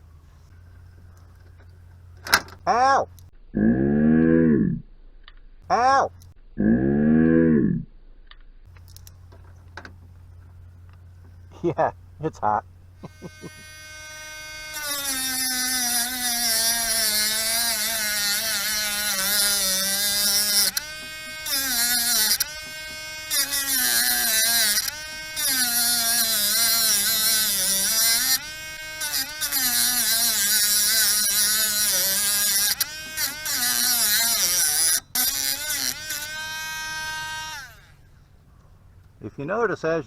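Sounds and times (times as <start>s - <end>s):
cut-off wheel grinding metal: 13.0s - 38.1s
rotary tool motor whine: 13.0s - 38.1s.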